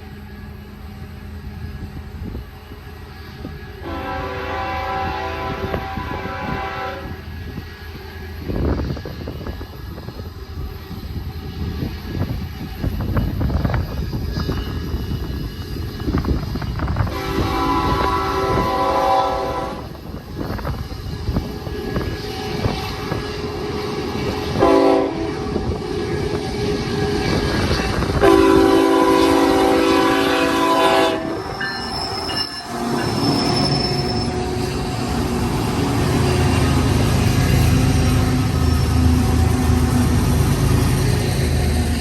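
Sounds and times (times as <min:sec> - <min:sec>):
diesel locomotive drone: 0:00.0 - 0:42.0
freight train rumbling: 0:00.0 - 0:42.0
locomotive air horn blasts: 0:03.8 - 0:07.2, 0:17.1 - 0:19.9, 0:24.5 - 0:27.2, 0:28.2 - 0:31.6.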